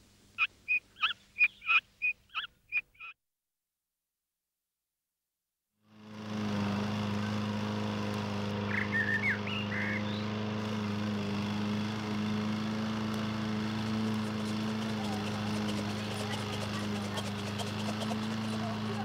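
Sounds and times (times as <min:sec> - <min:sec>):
bird chirps: 0:00.4 - 0:03.2, 0:08.7 - 0:10.3
steady low hum: 0:13.8 - 0:19.0.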